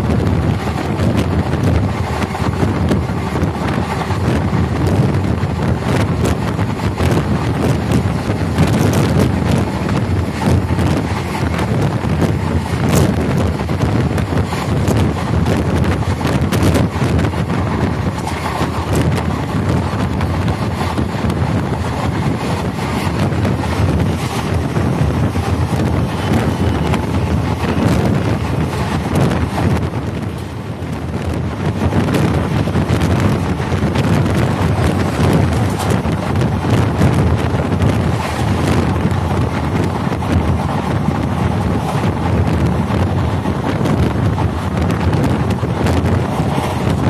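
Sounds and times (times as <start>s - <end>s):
train wheels rumbling on track: 0.0s - 47.0s
wind buffeting microphone: 0.0s - 47.0s.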